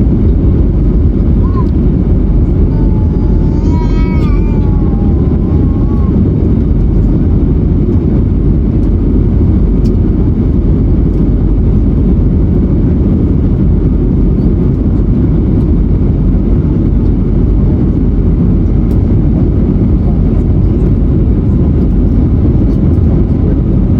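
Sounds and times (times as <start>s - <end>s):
airflow noise: 0.0s - 14.5s
jet engines running: 0.0s - 23.9s.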